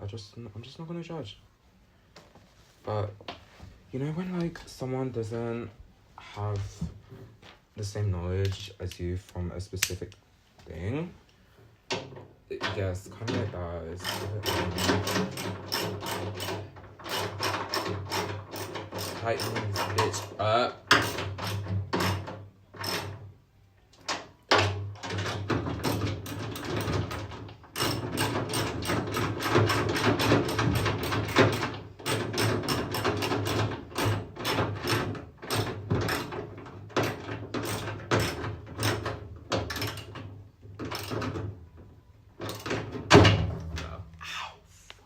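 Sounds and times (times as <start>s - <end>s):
hand tool clicking on bolts: 14.0s - 23.1s, 24.0s - 41.4s.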